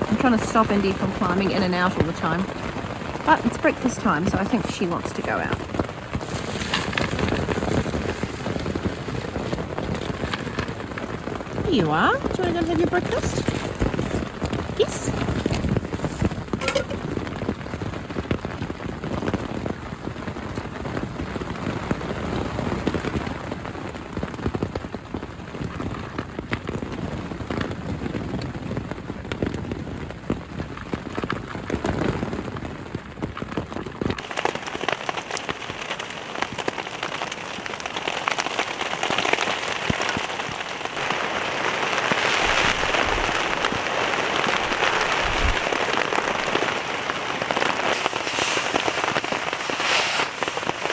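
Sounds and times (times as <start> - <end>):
rain pattering on a tent: 0.0 - 50.9.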